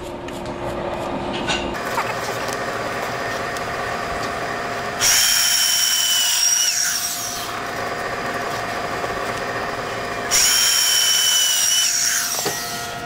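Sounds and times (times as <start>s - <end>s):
power drill motor: 1.8s - 13.0s
drill bit screeching on tile: 5.0s - 7.6s, 10.3s - 13.0s.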